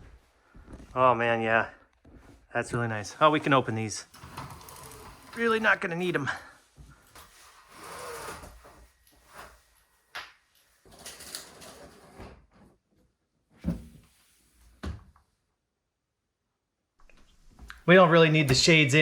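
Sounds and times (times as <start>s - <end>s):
window shades sliding and rubbing: 3.2s - 12.5s.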